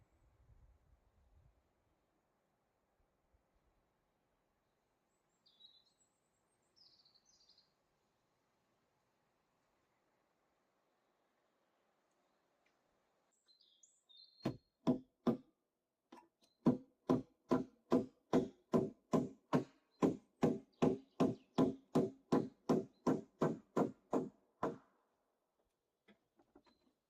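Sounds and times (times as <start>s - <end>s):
bird chirping: 5.1s - 7.8s, 13.3s - 14.7s
tool knocking blows: 16.6s - 24.8s.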